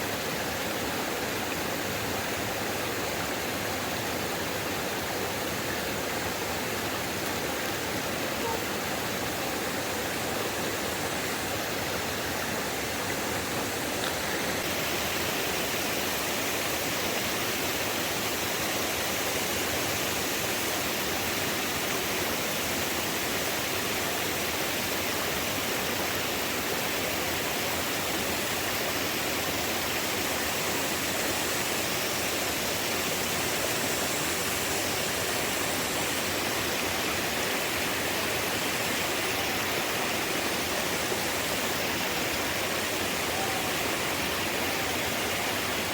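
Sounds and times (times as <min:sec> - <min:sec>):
rushing water: 0:00.0 - 0:45.9.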